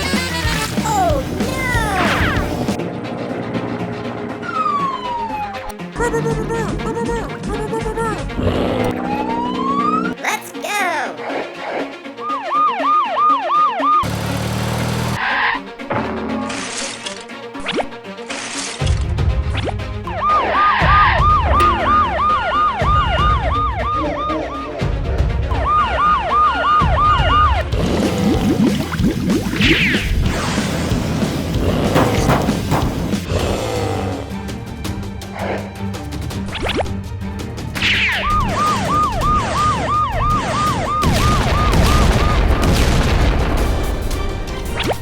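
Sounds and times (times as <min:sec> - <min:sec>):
background music: 0:00.0 - 0:45.0
electronic siren sweeping: 0:04.3 - 0:05.8, 0:08.9 - 0:10.2, 0:12.2 - 0:14.1, 0:20.1 - 0:27.6, 0:38.0 - 0:42.5.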